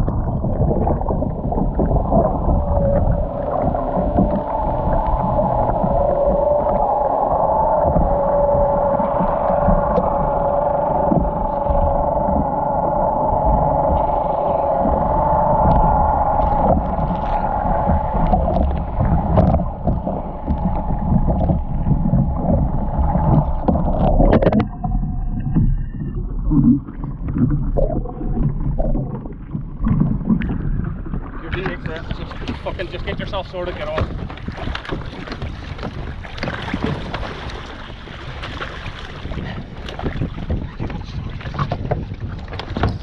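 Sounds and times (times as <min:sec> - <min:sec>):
outboard engine droning: 0:00.0 - 0:43.0
water splashing: 0:00.0 - 0:43.0
irregular splashes and knocks: 0:25.4 - 0:43.0.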